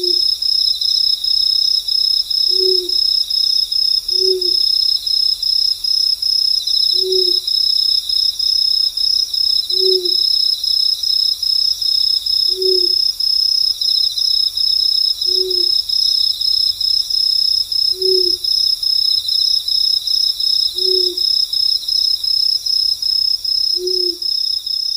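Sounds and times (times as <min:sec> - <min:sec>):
owl hooting: 0:00.0 - 0:00.3, 0:02.5 - 0:03.1, 0:04.1 - 0:04.7, 0:06.9 - 0:07.4, 0:09.7 - 0:10.3, 0:12.5 - 0:13.1, 0:15.2 - 0:15.8, 0:17.9 - 0:18.4, 0:20.7 - 0:21.3, 0:23.8 - 0:24.3
crickets chirping: 0:00.0 - 0:24.9.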